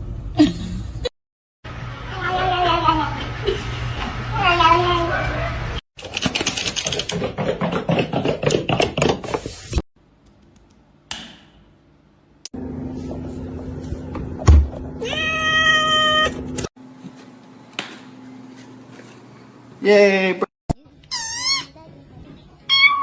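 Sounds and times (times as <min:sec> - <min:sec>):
cat meowing: 0:15.0 - 0:16.4.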